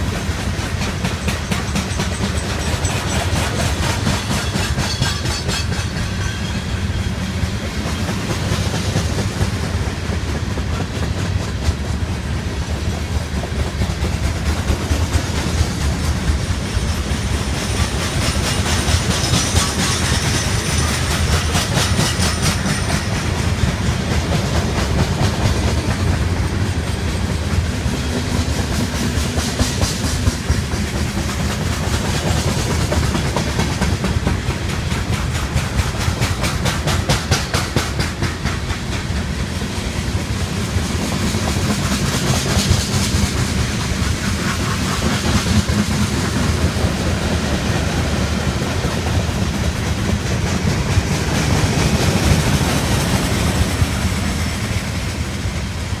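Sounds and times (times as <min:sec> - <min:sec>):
freight train rumble: 0:00.0 - 0:56.0
wheels clacking over rail joints: 0:00.0 - 0:56.0.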